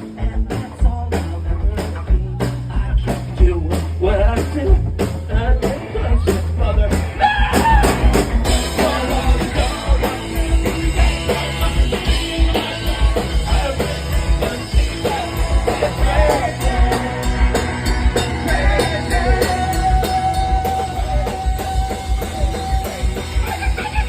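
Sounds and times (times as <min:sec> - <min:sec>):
drum kit beat: 0:00.0 - 0:24.0
electric guitars: 0:00.0 - 0:24.0
group singing: 0:05.7 - 0:21.7.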